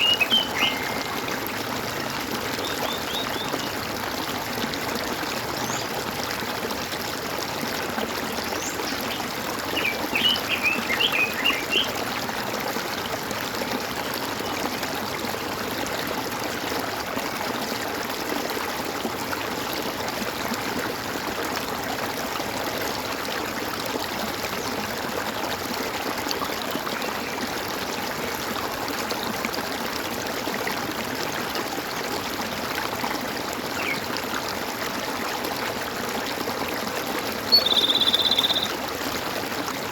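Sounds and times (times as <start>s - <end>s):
water gurgling and trickling: 0.0s - 39.9s
high bird chirps: 37.5s - 38.7s.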